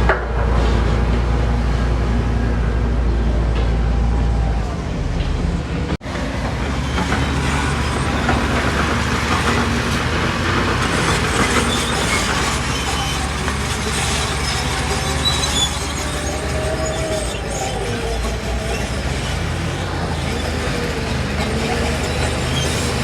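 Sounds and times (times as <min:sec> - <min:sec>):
diesel machinery running: 0:00.0 - 0:23.0
faint metal squeals: 0:11.0 - 0:23.0.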